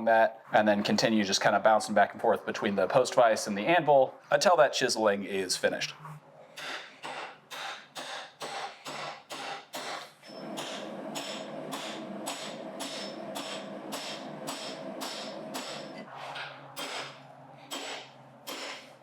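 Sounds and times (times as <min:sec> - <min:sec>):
hammer striking a chisel on steel: 0:06.6 - 0:16.0, 0:16.8 - 0:18.9.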